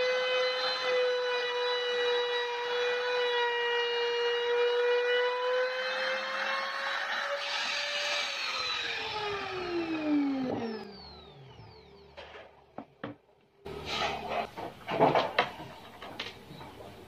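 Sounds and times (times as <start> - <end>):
power tool motor whining: 0.6 - 12.5
knocks and clatter: 14.1 - 17.0.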